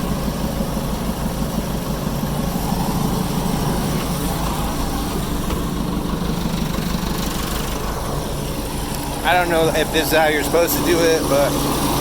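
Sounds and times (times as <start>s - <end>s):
diesel engine throbbing: 0.0s - 12.0s.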